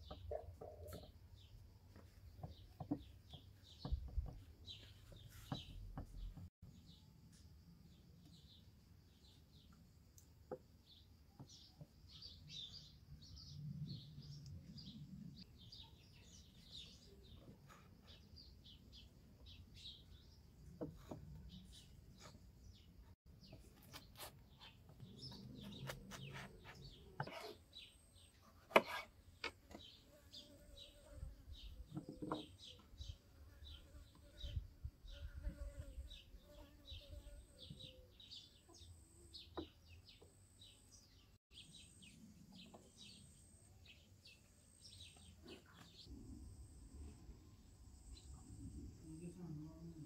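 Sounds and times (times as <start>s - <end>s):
faint bird chirping: 10.5s - 50.0s.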